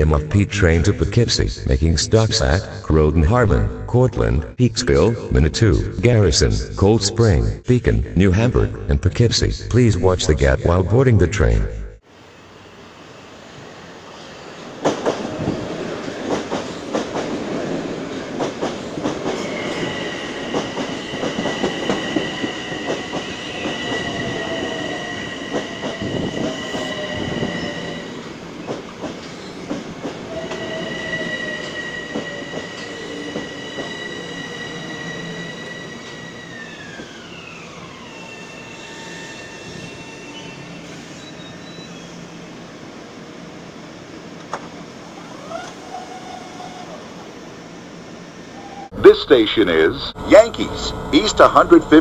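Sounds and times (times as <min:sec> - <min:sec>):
high train whine: 0:11.9 - 0:52.0.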